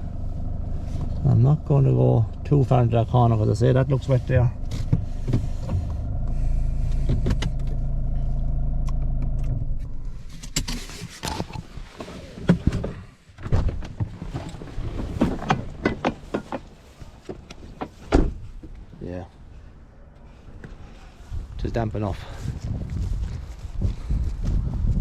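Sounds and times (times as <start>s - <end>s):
vehicle engine humming: 0.0s - 10.5s, 15.6s - 22.2s.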